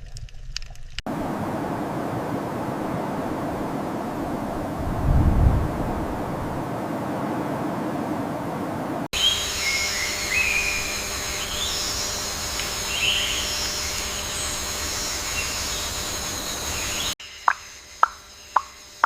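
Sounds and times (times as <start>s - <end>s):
steady high-pitched hiss: 1.1s - 19.0s
birds chirping: 5.7s - 18.8s.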